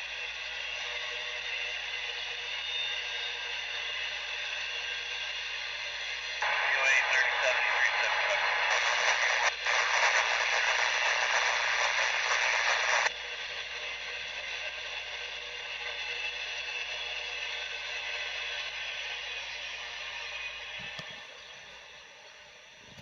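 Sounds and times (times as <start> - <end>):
radio static hiss: 6.4 - 13.1.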